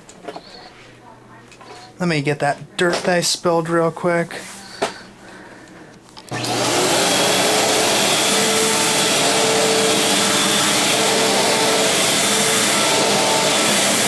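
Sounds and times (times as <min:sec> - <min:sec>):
vacuum cleaner motor whining: 0:06.2 - 0:14.0.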